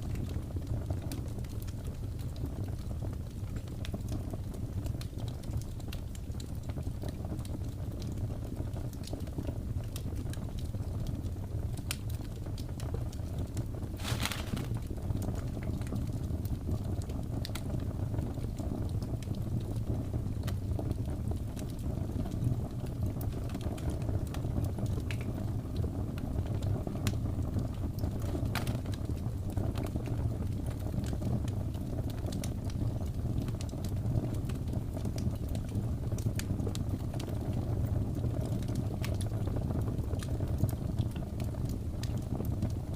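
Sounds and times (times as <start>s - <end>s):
fire low rumble: 0.0s - 42.9s
fire pops and snaps: 4.8s - 17.8s, 23.3s - 42.9s.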